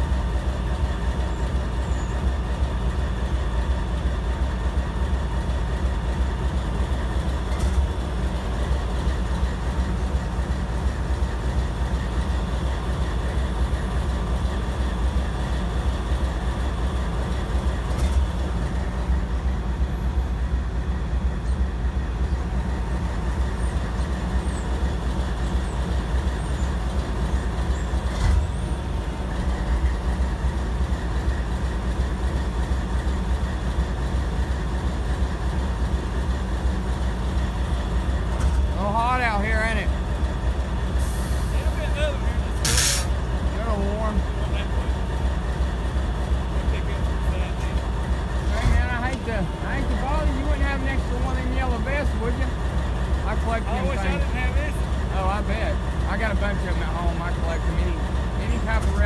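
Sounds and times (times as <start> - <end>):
freight train rumble: 0.0 - 59.0.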